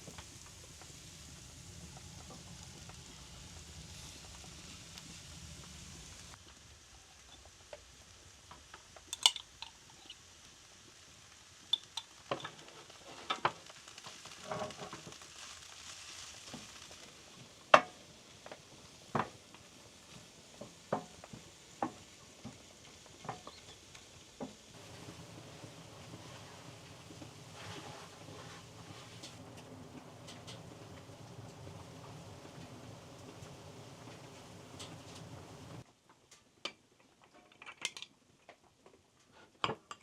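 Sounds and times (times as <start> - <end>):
faint sizzle: 0.0 - 37.3
utensils clicking on cookware: 9.1 - 10.1.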